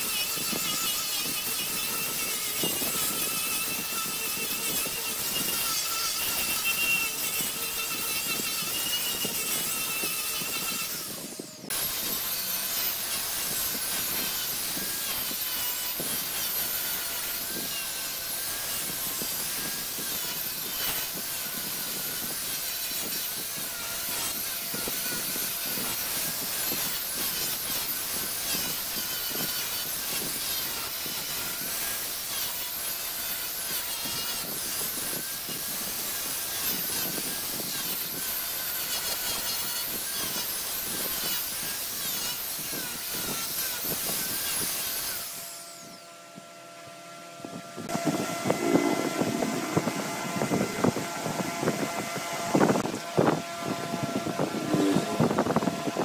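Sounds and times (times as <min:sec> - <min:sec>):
wood lathe whirring: 0:43.4 - 0:56.0
chisel scraping spinning wood: 0:47.8 - 0:56.0.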